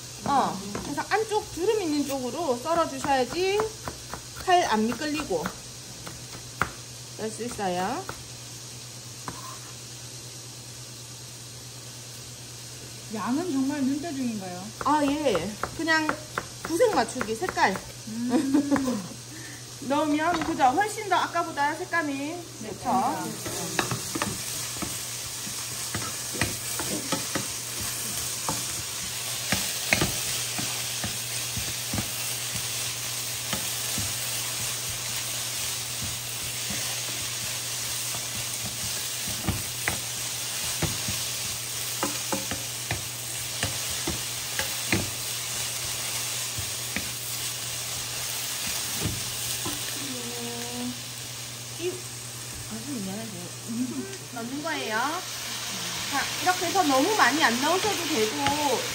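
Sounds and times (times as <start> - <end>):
potatoes sizzling in oil: 0.0 - 58.9
wooden spatula knocking pan: 42.0 - 45.2.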